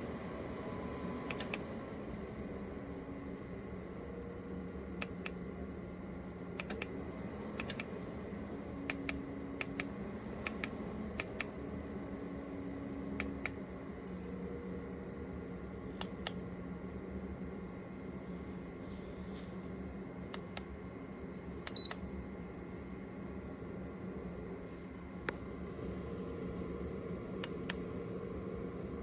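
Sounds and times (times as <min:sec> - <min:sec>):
steady machine hum: 0:00.0 - 0:29.0
sharp clicks: 0:06.6 - 0:06.9, 0:07.6 - 0:07.9.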